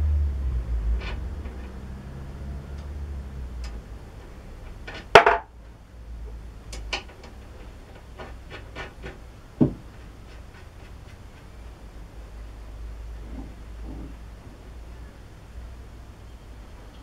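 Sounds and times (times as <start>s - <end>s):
metal parts knocking: 4.9s - 5.5s.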